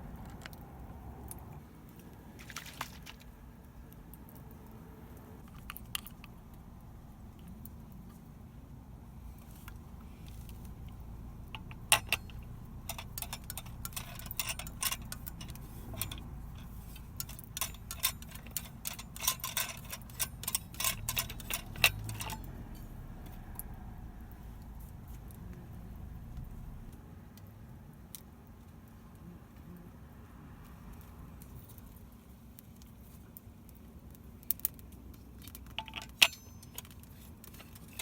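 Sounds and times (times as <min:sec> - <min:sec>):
sharp clicks and clinks: 0:11.5 - 0:23.7, 0:35.5 - 0:38.0.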